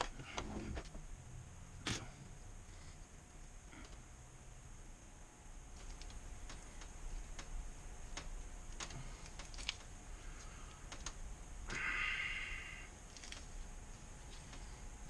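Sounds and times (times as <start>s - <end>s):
light clicks of small parts: 5.7s - 11.2s, 13.1s - 14.8s.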